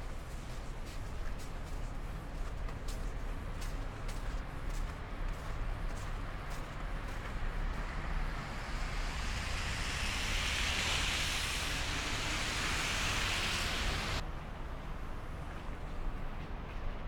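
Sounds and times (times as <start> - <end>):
car tyres hissing on snow: 5.2 - 14.2.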